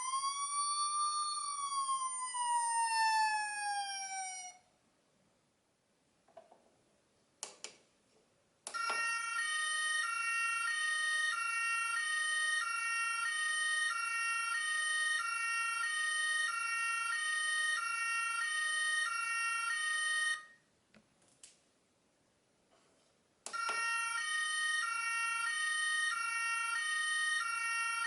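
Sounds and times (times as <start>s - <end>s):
electronic two-tone toy siren: 0.0s - 4.6s, 8.7s - 20.6s, 23.5s - 28.0s.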